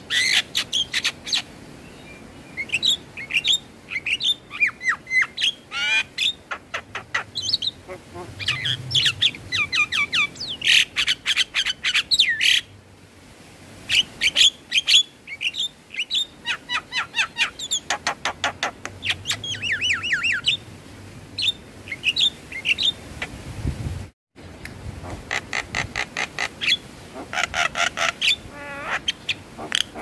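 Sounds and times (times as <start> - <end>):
myna bird calling and chattering: 2.6 - 12.6, 13.9 - 20.6, 25.0 - 30.0.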